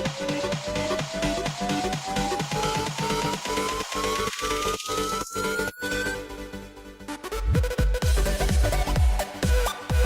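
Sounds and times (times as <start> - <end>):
electronic beat: 0.0 - 4.9, 7.3 - 10.0
rising synth tone: 7.2 - 8.0.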